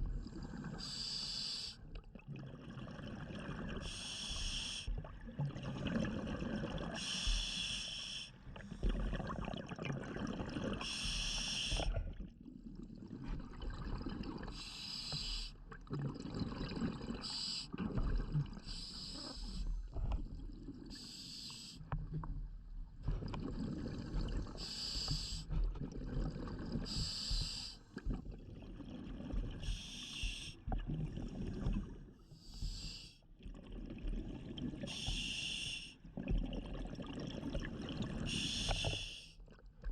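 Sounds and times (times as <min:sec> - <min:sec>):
diver breathing through regulator: 0:00.7 - 0:01.8, 0:03.8 - 0:04.9, 0:06.8 - 0:09.0, 0:10.8 - 0:12.1, 0:14.5 - 0:15.6, 0:17.0 - 0:17.8, 0:18.6 - 0:20.2, 0:20.9 - 0:21.9, 0:23.4 - 0:25.7, 0:26.3 - 0:27.9, 0:29.6 - 0:30.7, 0:32.4 - 0:33.2, 0:34.9 - 0:36.0, 0:38.2 - 0:39.4
gurgling exhaled bubbles: 0:02.0 - 0:04.1, 0:05.0 - 0:07.2, 0:08.6 - 0:14.6, 0:15.6 - 0:21.0, 0:22.9 - 0:32.3, 0:33.4 - 0:35.1, 0:36.1 - 0:39.7.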